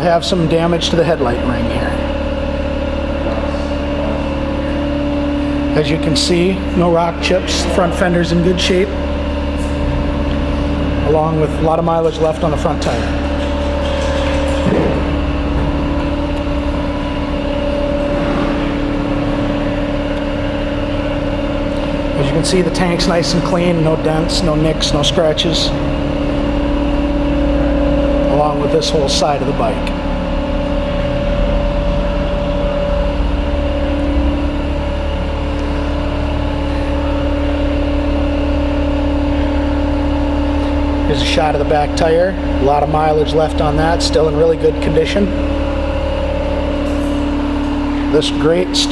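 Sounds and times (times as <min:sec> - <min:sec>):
mechanical drone with humming tones: 0:00.0 - 0:48.9.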